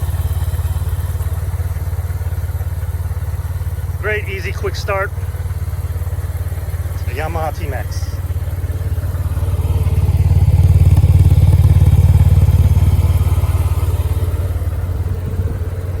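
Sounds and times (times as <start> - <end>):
scooter engine idling: 0.0 - 16.0.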